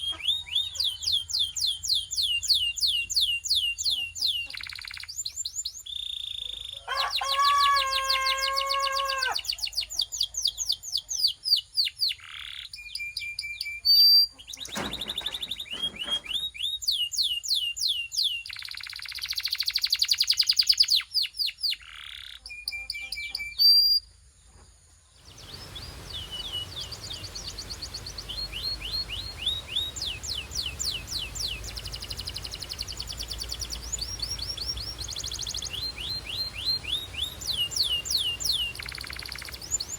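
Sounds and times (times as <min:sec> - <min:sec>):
canary singing: 0:00.0 - 0:24.0, 0:25.3 - 0:39.9
steady background hiss: 0:24.0 - 0:39.9.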